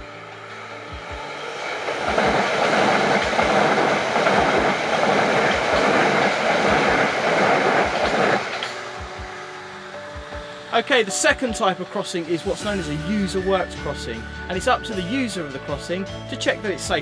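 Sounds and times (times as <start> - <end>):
passenger train passing at speed: 0.0 - 11.1.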